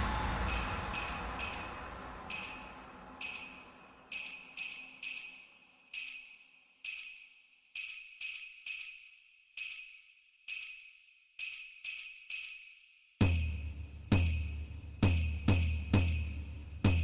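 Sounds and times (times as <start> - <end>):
low rumble: 0.0 - 4.2
bells jingling: 0.0 - 17.0.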